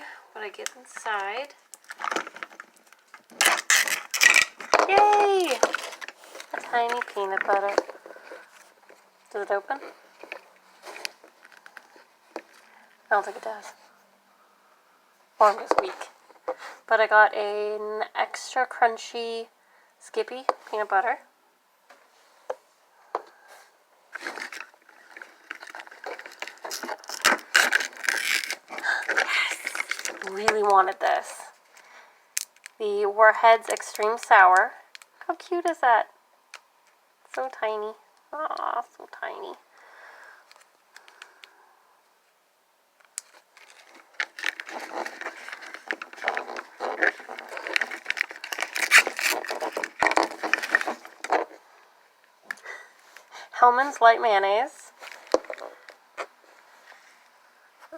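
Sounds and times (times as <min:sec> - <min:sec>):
plastic packaging crinkling: 0:00.6 - 0:09.2, 0:09.9 - 0:13.4, 0:24.1 - 0:30.7, 0:43.1 - 0:51.6, 0:54.9 - 0:57.1.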